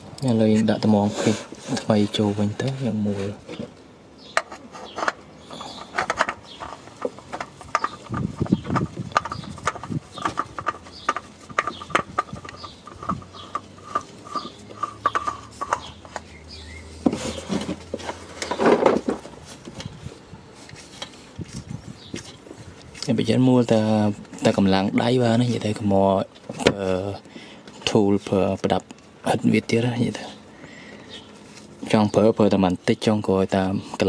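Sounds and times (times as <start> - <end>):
oil filter clicking and scraping: 0.2 - 29.1.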